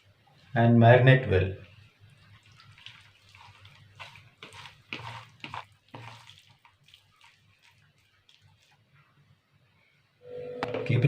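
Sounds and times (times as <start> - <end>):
chicken squelching in marinade: 2.0 - 9.2.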